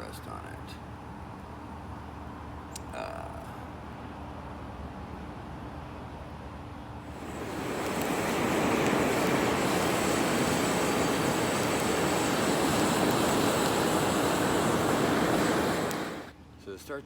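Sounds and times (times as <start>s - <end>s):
air rushing: 7.1s - 16.3s.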